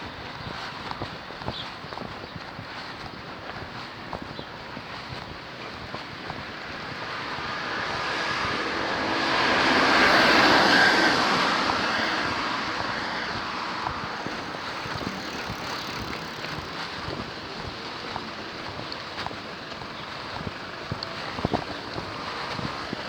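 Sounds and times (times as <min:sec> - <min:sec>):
motor vehicle passing by: 0:00.0 - 0:23.0.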